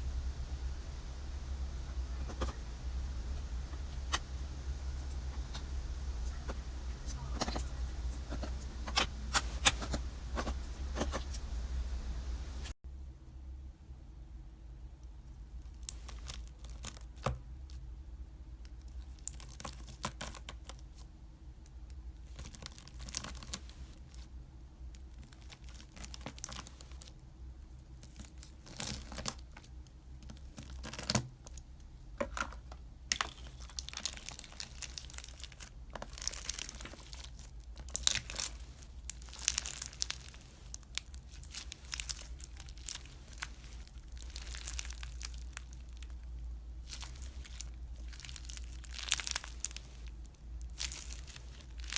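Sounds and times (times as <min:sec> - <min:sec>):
crumbly material crackling by hand: 0:15.4 - 0:17.9, 0:18.6 - 0:21.1, 0:21.8 - 0:32.0, 0:33.0 - 0:51.9.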